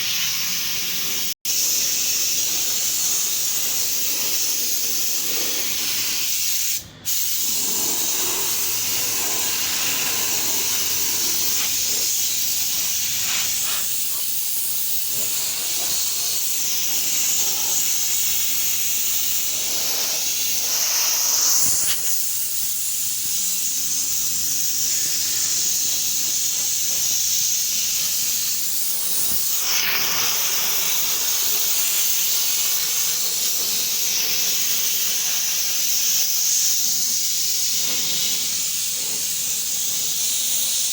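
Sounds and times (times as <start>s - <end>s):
paint spray hiss: 0.0s - 40.9s.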